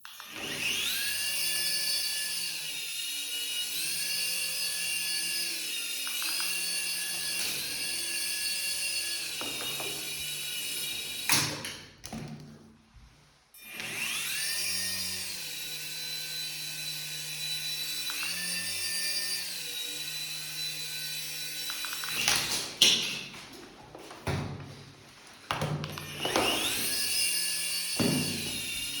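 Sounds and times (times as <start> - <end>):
toy helicopter motor whining: 0.0 - 11.3, 13.6 - 22.2, 25.9 - 29.0.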